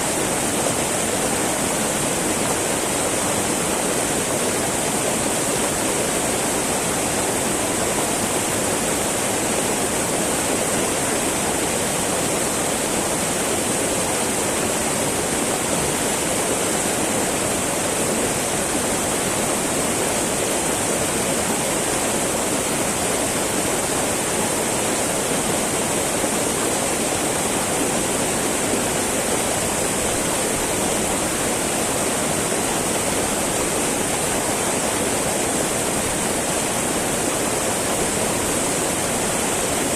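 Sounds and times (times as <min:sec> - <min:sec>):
river babbling over rocks: 0:00.0 - 0:39.9.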